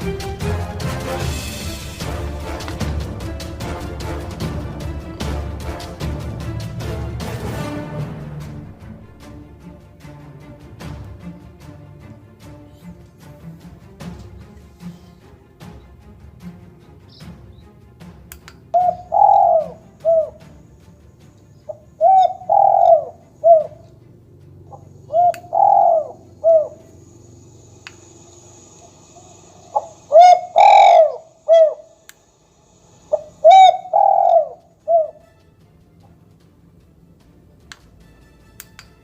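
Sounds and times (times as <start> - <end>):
dove cooing through speaker: 18.8 - 20.4, 22.0 - 23.8, 25.1 - 26.9, 29.8 - 31.9, 33.4 - 35.2.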